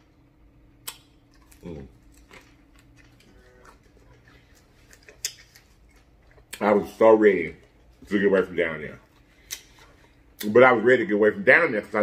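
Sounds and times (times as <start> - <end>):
mouth clicks and lip smacks: 0.8 - 6.7, 9.1 - 10.5.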